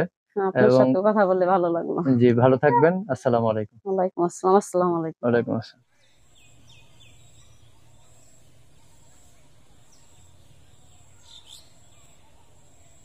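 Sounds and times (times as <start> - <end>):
bird chirps: 6.0 - 13.0
steady low hum: 6.2 - 13.0.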